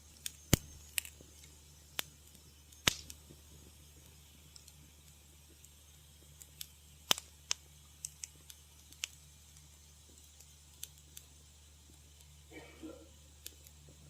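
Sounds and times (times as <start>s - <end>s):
low steady hum: 0.0s - 14.0s
wood fire crackling: 0.0s - 14.0s.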